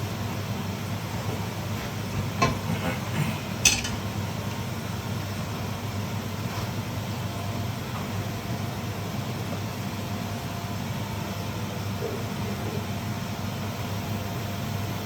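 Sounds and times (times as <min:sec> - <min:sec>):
low mechanical hum: 0:00.0 - 0:15.0
utensil clinking on cookware: 0:03.6 - 0:04.1.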